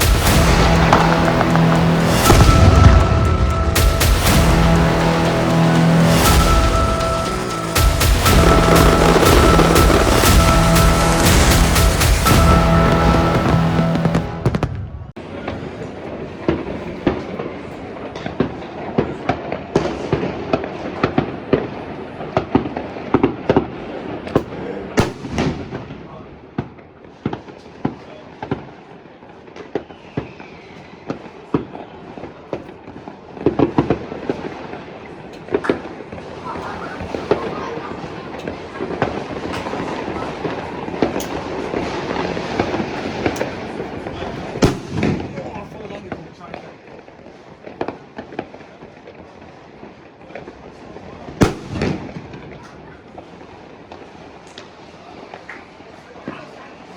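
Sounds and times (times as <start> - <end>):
firecracker bangs: 0.0 - 28.8, 29.6 - 49.2, 51.3 - 54.8
distant fireworks crackle and rumble: 0.0 - 56.9.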